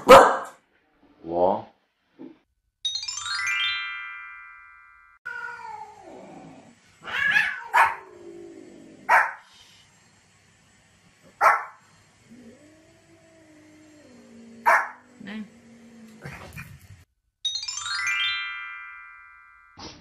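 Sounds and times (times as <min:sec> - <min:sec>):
dog barking sharply: 0:00.0 - 0:00.6
descending chime notes: 0:02.8 - 0:05.2, 0:17.4 - 0:19.8
cat meowing: 0:05.3 - 0:06.3, 0:07.0 - 0:08.2.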